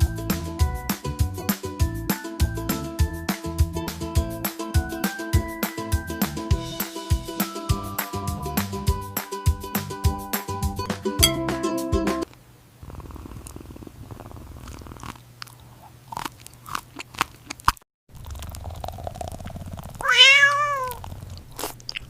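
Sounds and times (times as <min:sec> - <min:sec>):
cat purring: 0:12.8 - 0:15.8, 0:18.2 - 0:21.6
cat chewing and crunching food: 0:13.0 - 0:22.0
cat meowing: 0:20.0 - 0:21.0.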